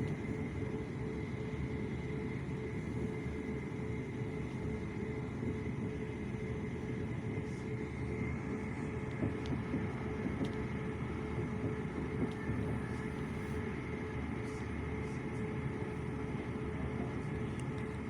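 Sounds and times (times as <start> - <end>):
train running rumble: 4.1 - 18.0.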